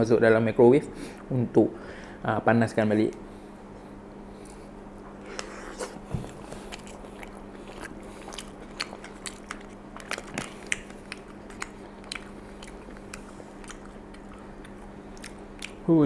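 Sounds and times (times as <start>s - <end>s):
steady low hum: 0.0s - 16.0s
wet chewing and mouth clicks: 4.4s - 16.0s.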